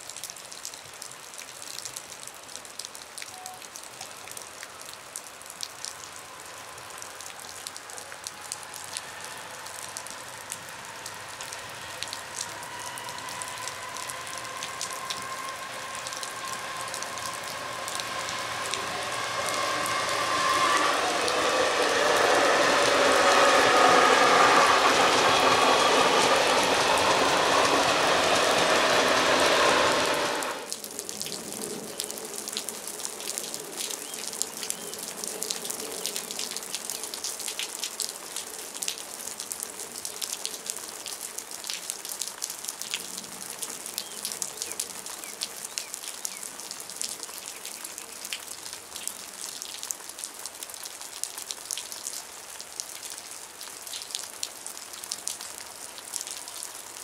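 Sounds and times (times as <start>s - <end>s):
rain pattering: 0.0s - 57.0s
train wheels clattering: 14.5s - 30.7s.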